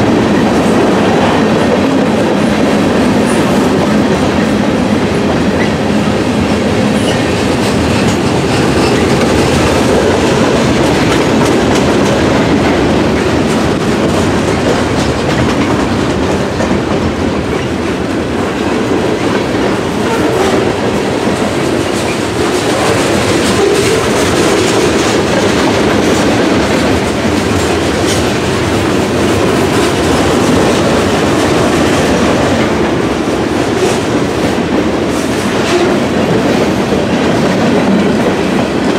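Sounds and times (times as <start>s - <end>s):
train wheels clattering: 0.0s - 38.9s.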